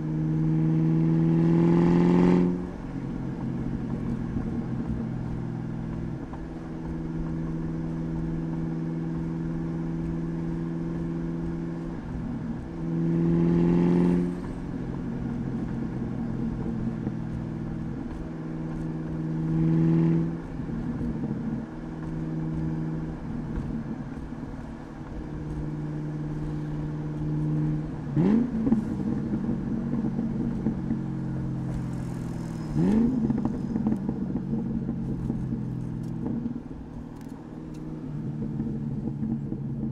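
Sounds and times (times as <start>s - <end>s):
car engine cruising and revving: 0.0s - 39.9s.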